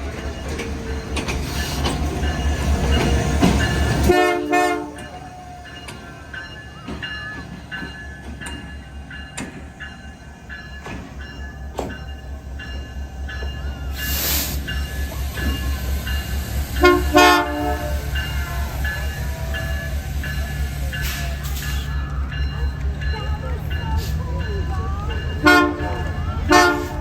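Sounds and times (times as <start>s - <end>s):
diesel locomotive rumbling: 0.0s - 27.0s
train horn blast: 4.0s - 5.2s, 16.7s - 22.2s, 25.2s - 27.0s
bell ringing: 4.9s - 27.0s
burst of hiss: 14.0s - 16.9s.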